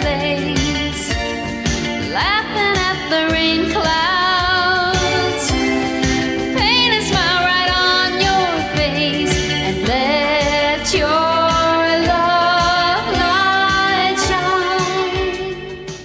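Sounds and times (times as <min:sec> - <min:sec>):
woman singing: 0:00.0 - 0:01.2, 0:02.1 - 0:05.8, 0:06.5 - 0:16.0
soft pop music with steady beat: 0:00.0 - 0:16.0.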